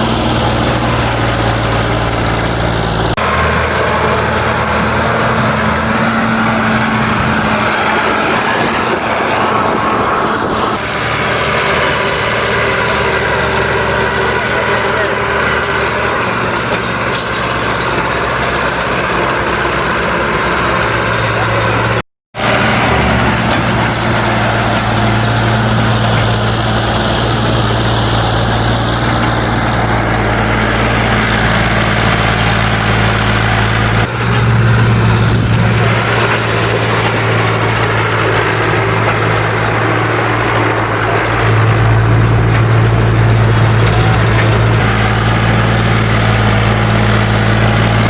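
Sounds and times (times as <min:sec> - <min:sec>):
tractor engine under heavy load: 0:00.0 - 0:48.0.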